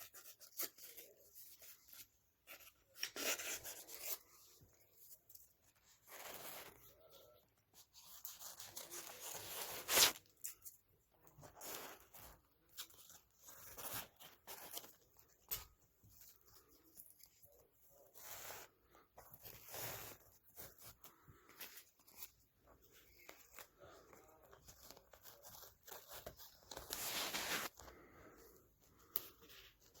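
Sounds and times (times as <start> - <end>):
hand scraping and rubbing carpet: 26.7 - 27.8.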